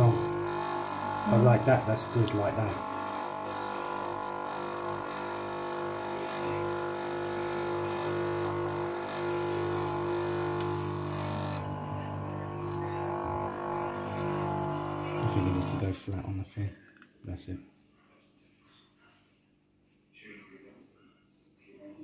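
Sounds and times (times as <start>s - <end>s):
coffee machine pump humming: 0.0s - 16.0s.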